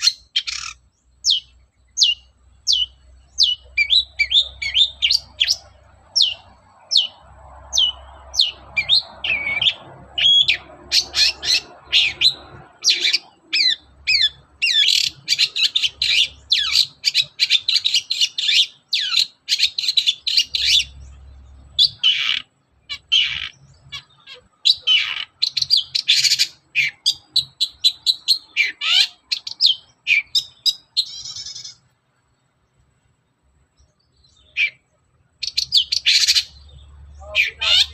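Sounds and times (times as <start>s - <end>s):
shrike singing: 0.0s - 31.9s, 34.0s - 37.9s.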